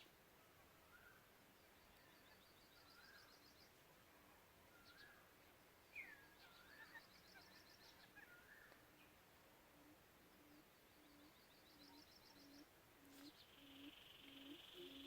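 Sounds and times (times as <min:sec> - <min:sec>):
bird ticking trills: 0:09.8 - 0:15.0.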